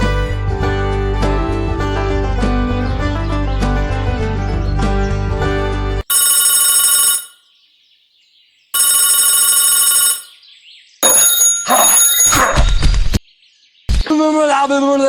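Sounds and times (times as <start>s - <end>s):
background music: 0.0s - 6.0s
electronic ringing tone: 6.1s - 7.4s, 8.8s - 10.4s, 11.0s - 12.6s.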